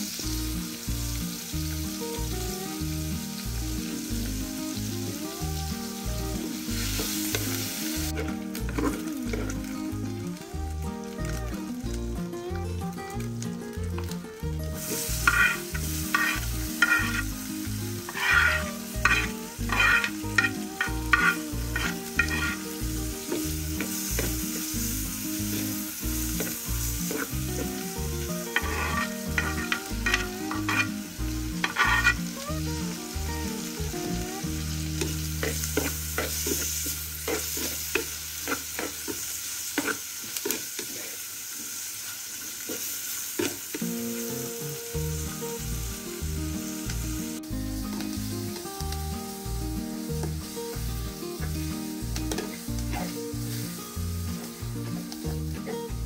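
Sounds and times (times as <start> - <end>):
soft background music: 0.0 - 38.7, 43.8 - 56.0
vegetables sizzling in oil: 0.0 - 56.0
wooden spoon scraping and stirring: 15.2 - 17.3, 18.1 - 22.6, 28.6 - 30.9, 31.6 - 32.2.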